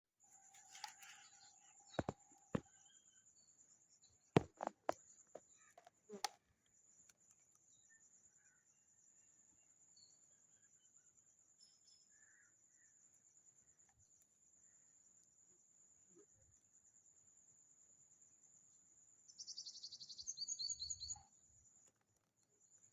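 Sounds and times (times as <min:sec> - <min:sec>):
faint knocks and clicks: 0:02.0 - 0:02.7.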